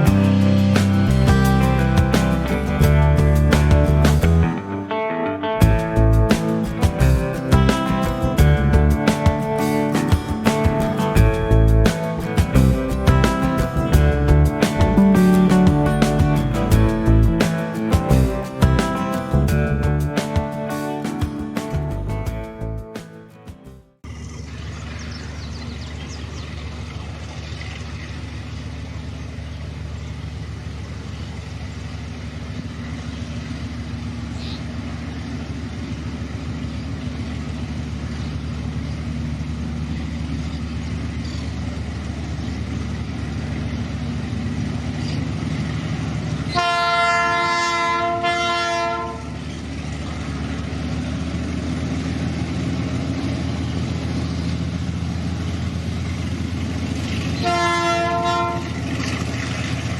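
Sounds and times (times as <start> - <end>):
diesel locomotive engines under load: 0.0 - 4.6, 5.6 - 59.9
locomotive horn blast: 46.4 - 49.6, 57.1 - 59.2.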